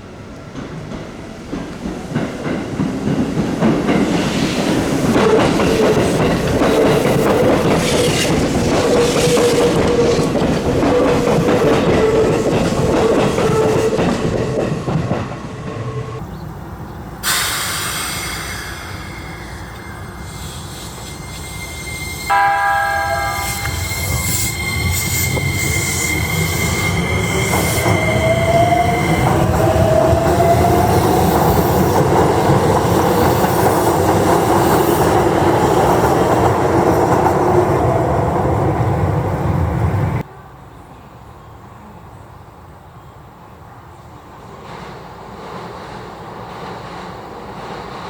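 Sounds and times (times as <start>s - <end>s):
train horn blast: 21.2s - 27.1s.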